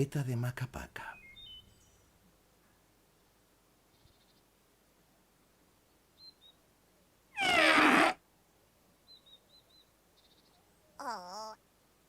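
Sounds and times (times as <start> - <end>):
faint high bird-like chirps: 1.1 - 2.8, 3.9 - 4.5, 5.9 - 6.6, 9.0 - 11.6
yowling trumpet blare: 7.4 - 8.2.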